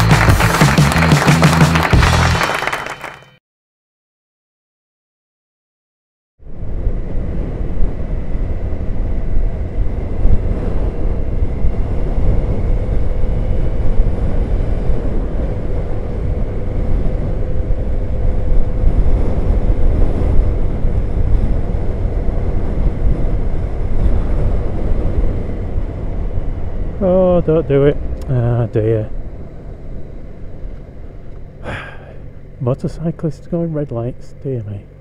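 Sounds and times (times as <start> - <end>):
motorcycle engine drone: 0.0 - 3.4, 6.4 - 35.0
wind rumble on microphone: 6.4 - 31.6.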